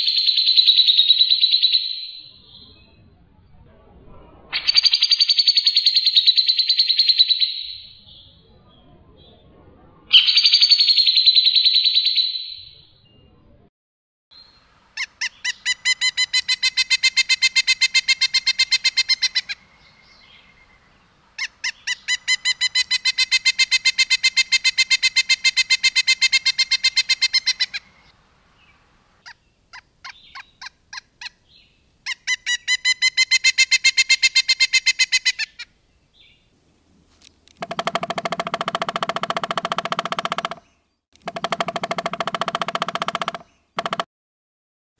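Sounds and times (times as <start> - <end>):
songbird warbling and trilling: 14.4 - 36.5, 37.6 - 44.0.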